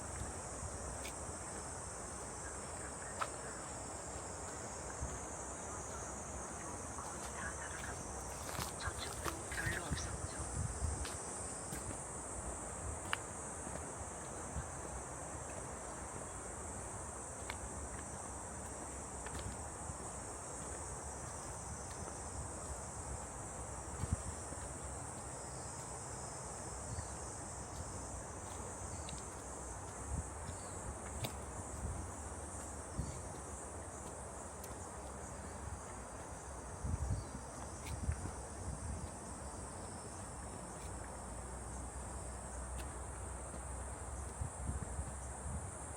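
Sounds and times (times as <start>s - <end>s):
insects buzzing: 0.0s - 45.9s.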